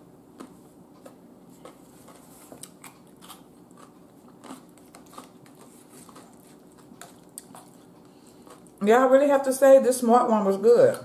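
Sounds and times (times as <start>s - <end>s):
chewing crisp cucumber: 0.3s - 8.8s.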